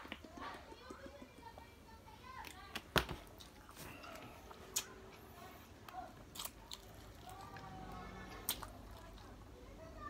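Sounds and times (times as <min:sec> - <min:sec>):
person chewing: 0:05.8 - 0:09.4.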